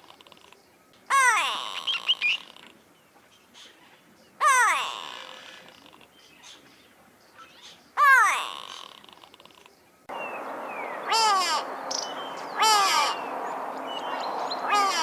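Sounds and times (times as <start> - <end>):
bird nasal downward calls: 1.1 - 2.7, 4.4 - 6.0, 8.0 - 9.4, 10.1 - 15.0.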